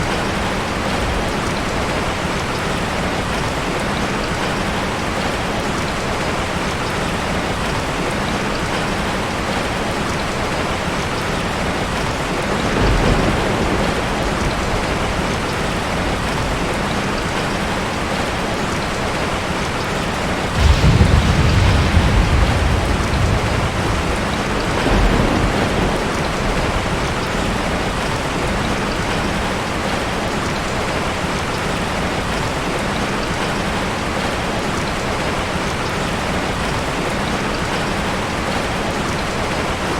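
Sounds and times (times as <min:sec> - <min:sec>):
rain falling on a forest: 0:00.0 - 0:39.9
thunder rumbling: 0:12.4 - 0:16.7, 0:20.4 - 0:29.7.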